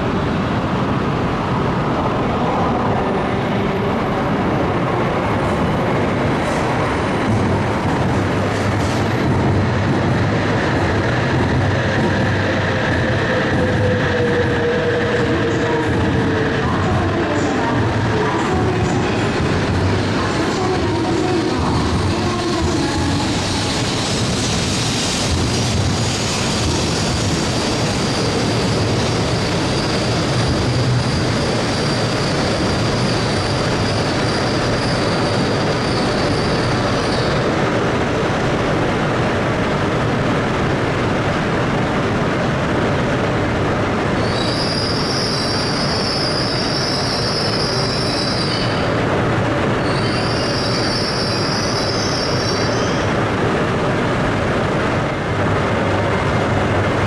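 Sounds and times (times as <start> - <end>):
train wheels rumbling: 0.0 - 57.0
high-pitched wheel squeal: 49.8 - 53.0.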